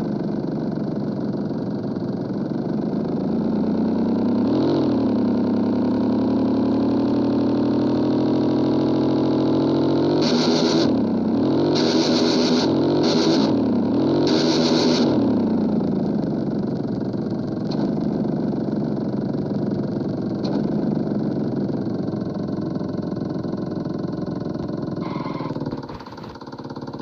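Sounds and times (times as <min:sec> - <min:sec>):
motorcycle engine idling loudly: 0:00.0 - 0:27.0
raspy exhaust revs: 0:09.8 - 0:15.7, 0:25.0 - 0:26.0.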